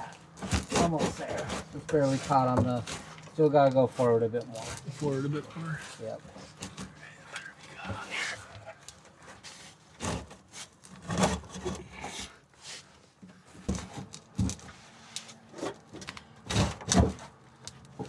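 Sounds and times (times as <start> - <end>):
fuel tank knocking and scraping: 0.3 - 5.2.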